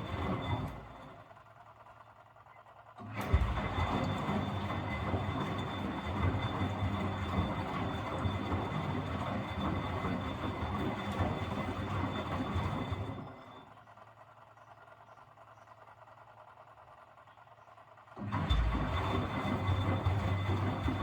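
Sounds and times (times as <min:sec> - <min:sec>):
washing machine drum churning: 0:00.0 - 0:01.2, 0:03.0 - 0:13.4, 0:18.2 - 0:21.0.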